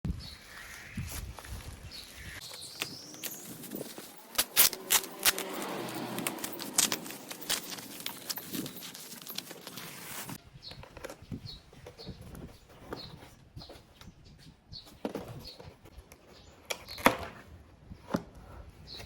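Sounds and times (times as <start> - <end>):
packaging rustling: 2.4 - 10.4.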